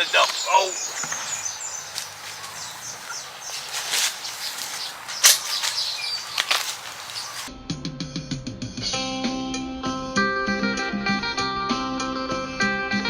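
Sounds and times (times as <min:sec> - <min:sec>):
birds chirping: 0:00.0 - 0:07.5.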